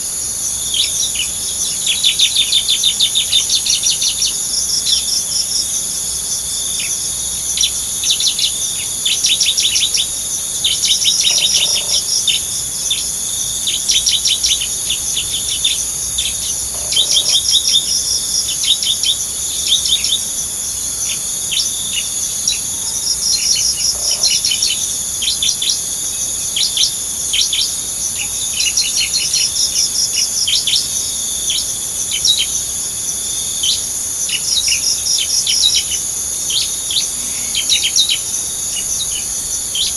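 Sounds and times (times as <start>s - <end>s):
high-pitched insect drone: 0.0s - 39.9s
bird chattering calls: 10.7s - 13.0s, 13.7s - 20.2s.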